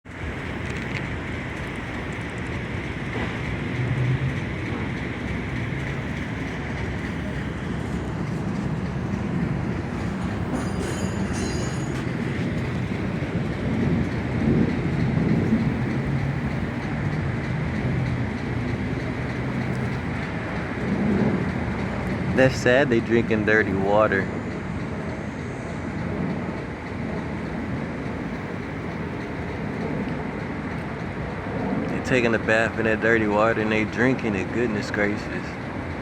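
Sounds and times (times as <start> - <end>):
low rumbling vehicle noise: 0.0 - 36.0.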